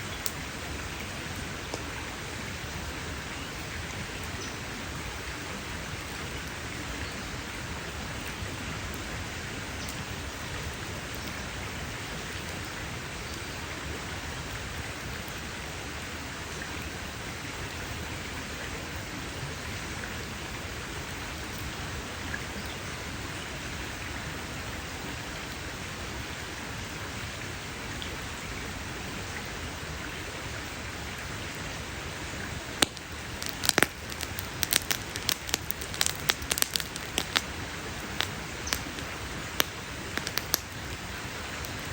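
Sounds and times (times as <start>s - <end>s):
campfire hissing: 0.0s - 41.9s
burning wood crackling and popping: 0.1s - 2.0s, 32.4s - 41.9s.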